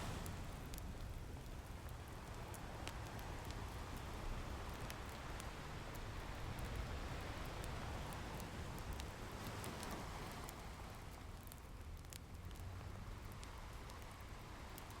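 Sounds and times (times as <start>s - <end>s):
ocean waves: 0.0s - 1.1s, 2.6s - 11.5s
wood fire crackling and popping: 0.0s - 15.0s.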